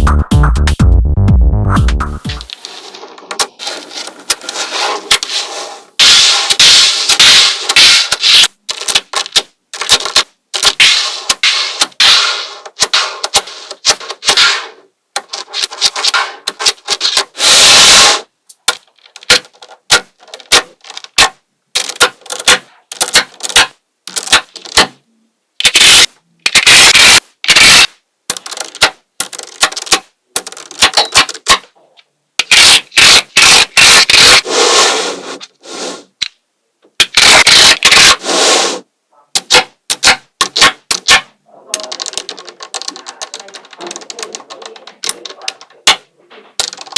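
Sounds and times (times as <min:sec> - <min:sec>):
balls rattling and scraping: 0:02.2 - 0:25.0, 0:27.9 - 0:36.3, 0:36.9 - 0:46.9
magnetic balls clicking together: 0:18.5 - 0:25.0, 0:25.6 - 0:34.4, 0:39.3 - 0:46.9.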